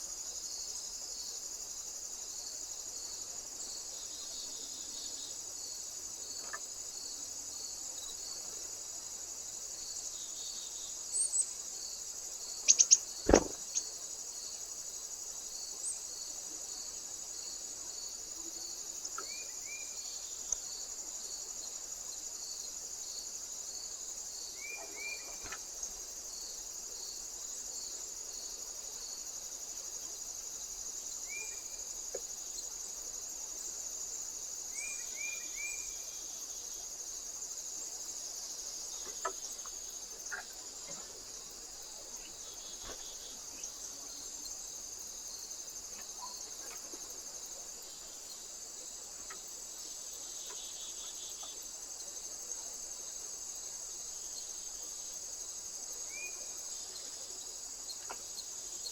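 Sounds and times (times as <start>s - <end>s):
crickets chirping: 0.0s - 58.9s
sharp knocks: 13.3s - 13.8s.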